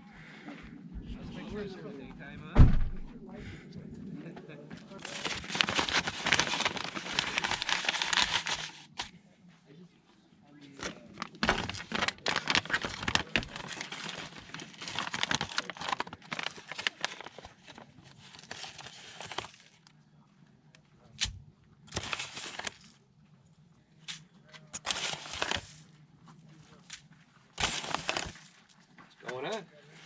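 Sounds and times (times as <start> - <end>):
crinkling handling noises: 4.8 - 9.2, 10.6 - 20.0, 20.7 - 30.0.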